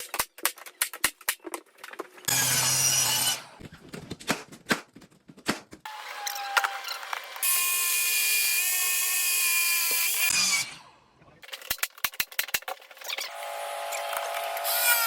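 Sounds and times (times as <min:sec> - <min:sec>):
power tool running: 0:13.3 - 0:15.0.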